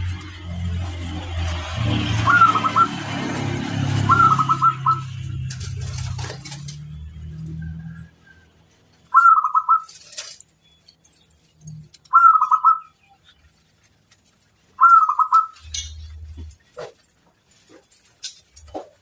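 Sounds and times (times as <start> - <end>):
dove cooing: 2.1 - 3.1, 3.9 - 6.6, 9.1 - 10.1, 12.1 - 13.0, 14.8 - 16.0.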